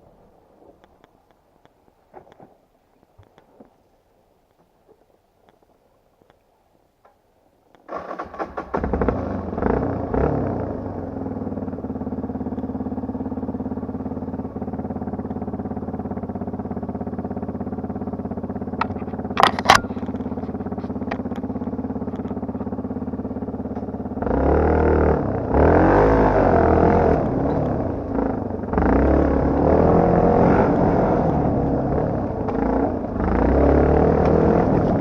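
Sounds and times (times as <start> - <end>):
motorcycle engine idling and revving: 7.8 - 35.0.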